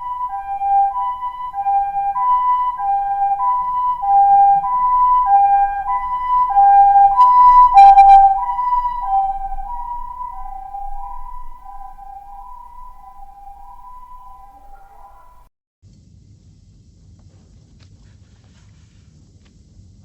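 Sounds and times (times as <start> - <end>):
two-tone siren: 0.0 - 15.5.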